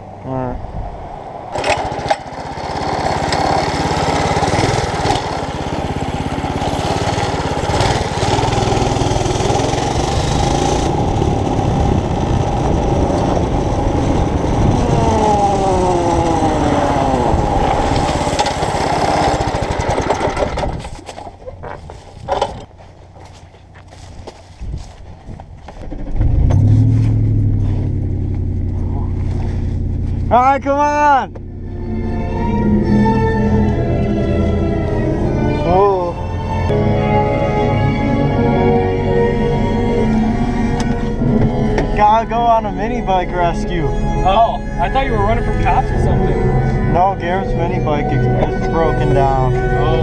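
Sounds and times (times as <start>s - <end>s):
small motorbike engine running: 1.6s - 21.3s
wind on microphone: 9.8s - 22.7s, 24.5s - 25.6s.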